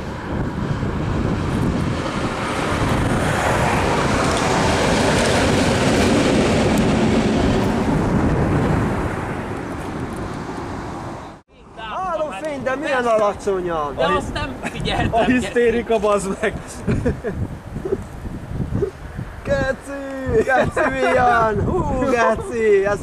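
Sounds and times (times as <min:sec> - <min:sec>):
train passing: 0:00.0 - 0:16.2.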